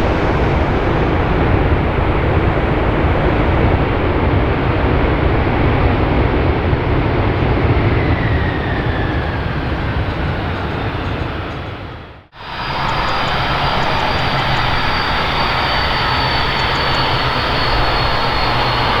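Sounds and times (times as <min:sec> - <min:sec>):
jet engines roaring: 0:00.0 - 0:19.0
faint gliding whine: 0:12.4 - 0:19.0.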